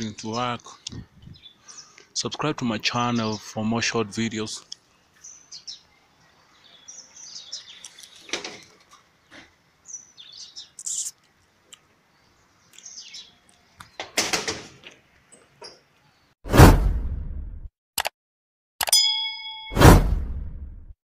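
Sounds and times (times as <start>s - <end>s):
small birds chirping: 0.0s - 14.2s.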